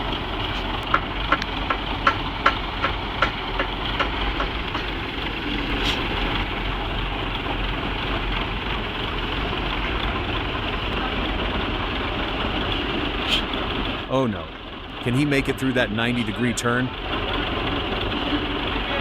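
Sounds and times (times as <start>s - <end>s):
vehicle engine running: 0.0s - 19.0s
sharp knocks: 0.9s - 5.0s.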